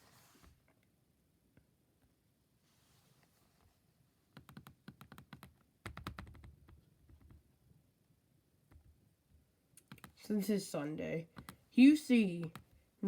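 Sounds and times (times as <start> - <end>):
faint keyboard typing clicks: 4.3 - 7.4, 9.8 - 10.2, 11.3 - 11.6, 12.4 - 12.8.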